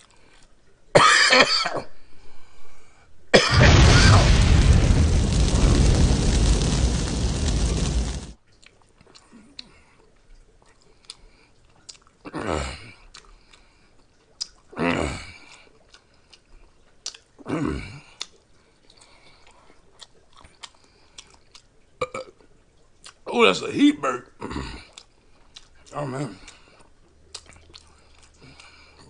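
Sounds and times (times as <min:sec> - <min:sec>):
man chewing noodles: 0:00.0 - 0:00.7, 0:08.4 - 0:12.3, 0:12.9 - 0:14.8, 0:15.4 - 0:17.5, 0:18.1 - 0:23.2, 0:24.7 - 0:29.0
explosion sound effect: 0:03.4 - 0:08.4.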